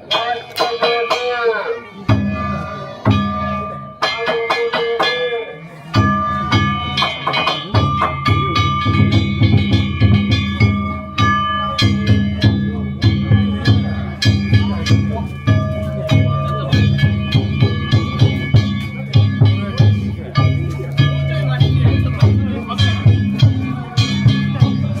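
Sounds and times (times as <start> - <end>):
metal gongs ringing: 0.1 - 25.0
fast taiko drum beat: 6.0 - 25.0.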